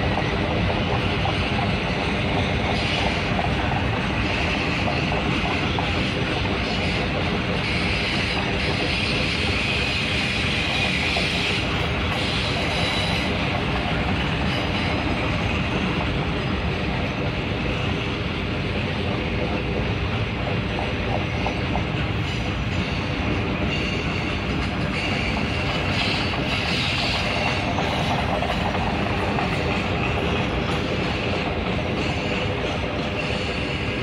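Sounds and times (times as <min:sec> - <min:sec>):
train wheels rumbling on rails: 0:00.0 - 0:34.0
high wheel squeal: 0:06.6 - 0:13.5.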